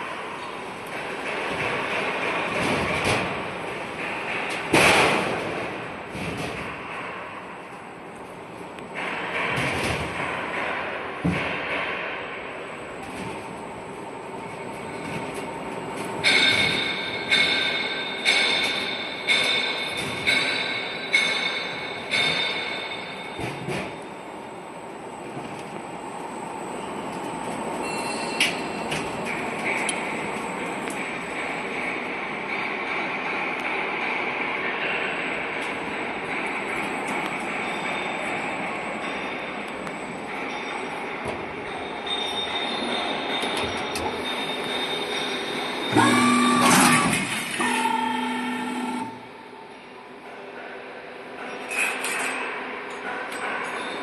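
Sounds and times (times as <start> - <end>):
roll forming machine rumbling: 0.0 - 54.0
sharp metallic clanks: 16.2 - 24.0
metallic squeal: 27.8 - 28.8, 41.8 - 46.0
roll forming machine running: 35.0 - 50.0.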